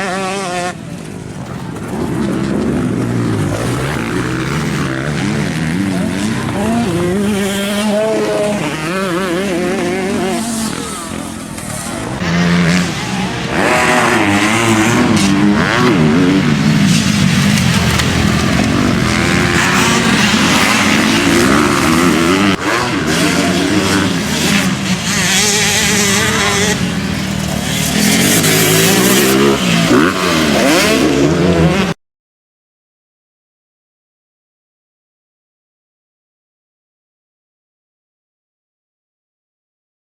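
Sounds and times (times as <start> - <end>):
motocross bikes revving: 0.0 - 32.0.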